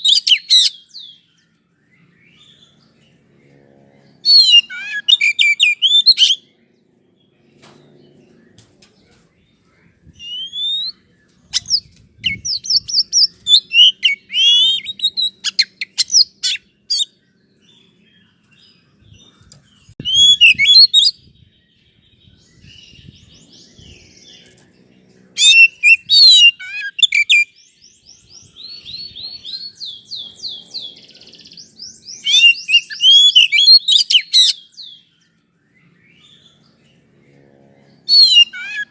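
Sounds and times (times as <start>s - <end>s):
bird singing whistled phrases: 0.0s - 2.6s, 4.3s - 6.4s, 10.2s - 17.1s, 20.0s - 21.3s, 25.4s - 30.6s, 31.7s - 36.4s, 38.1s - 38.9s.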